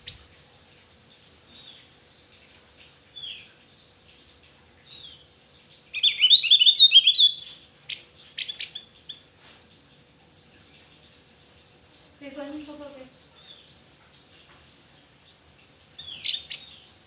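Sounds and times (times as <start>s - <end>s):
bird singing: 5.9s - 9.2s, 16.0s - 17.0s.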